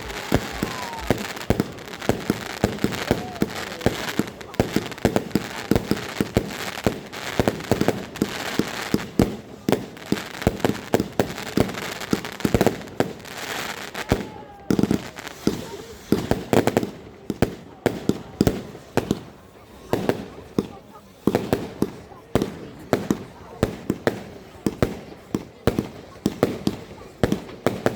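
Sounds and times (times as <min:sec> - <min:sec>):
firework hiss: 0:00.0 - 0:16.6.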